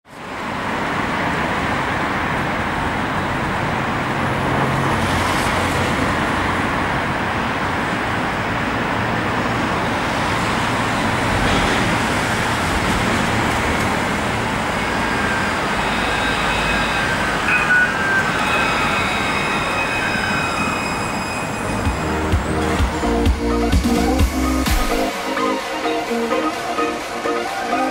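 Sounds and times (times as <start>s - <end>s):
city street traffic: 0.0s - 27.9s
tram high thin whines: 10.0s - 27.9s.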